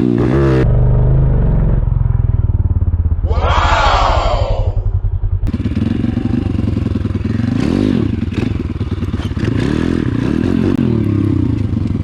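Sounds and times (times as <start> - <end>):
pit bike engine revving: 3.8 - 12.0.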